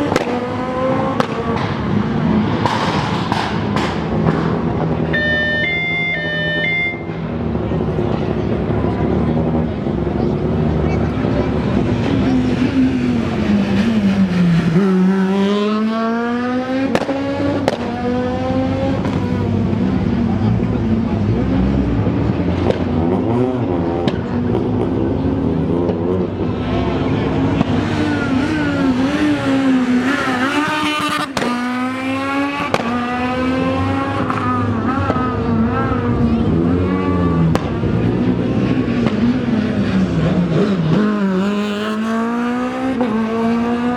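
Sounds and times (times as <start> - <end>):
rally car engine revving: 0.0 - 43.9
sharp cracks: 31.2 - 31.6.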